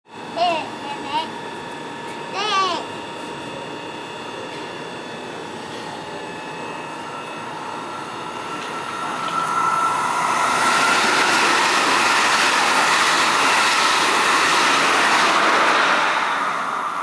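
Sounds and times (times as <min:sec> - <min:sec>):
train wheels rushing on rails: 0:07.6 - 0:17.0.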